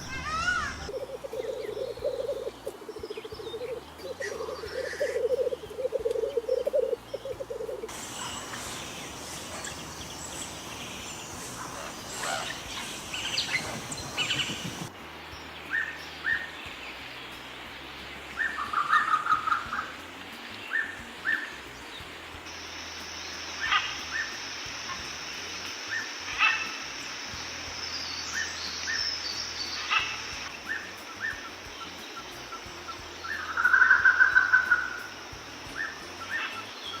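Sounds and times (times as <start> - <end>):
bird trills: 0.0 - 17.0, 28.2 - 37.0
birds chirping: 0.0 - 37.0.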